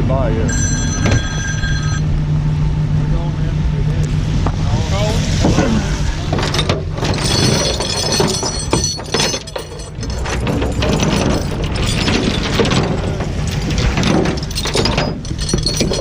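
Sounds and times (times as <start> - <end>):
metal debris clinking and scraping: 6.2 - 16.0.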